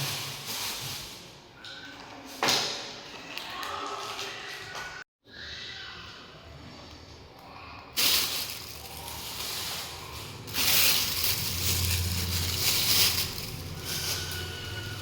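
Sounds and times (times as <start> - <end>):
rustling and crunching: 0.0 - 1.5, 8.0 - 15.0.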